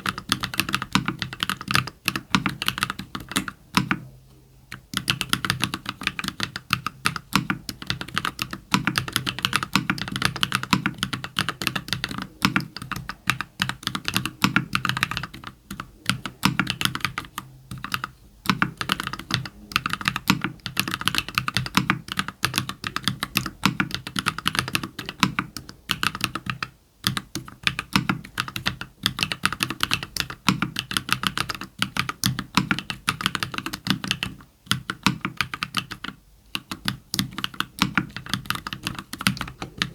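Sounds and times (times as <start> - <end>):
fast typing on mechanical keyboard: 0.0 - 4.0, 4.7 - 39.9.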